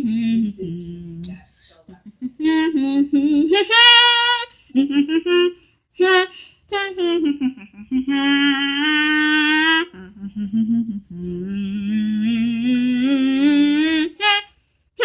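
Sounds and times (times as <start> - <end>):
person humming: 0.0 - 6.2, 6.8 - 14.3.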